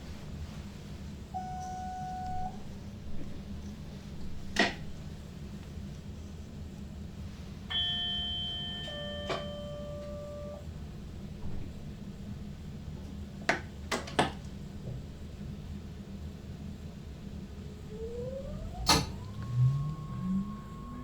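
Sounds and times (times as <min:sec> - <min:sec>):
train cab hum: 0:00.0 - 0:21.0
electronic two-note chime: 0:07.7 - 0:10.6.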